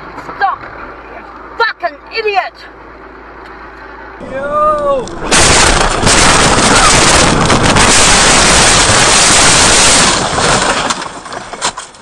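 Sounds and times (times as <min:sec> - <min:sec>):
distorted roar of car crash: 0:04.2 - 0:12.0.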